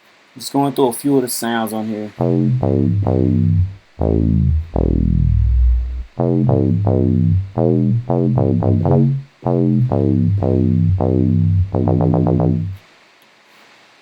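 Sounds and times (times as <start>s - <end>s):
long low synth note sweeping: 2.2s - 12.8s
plucky synth bass notes: 2.2s - 12.8s.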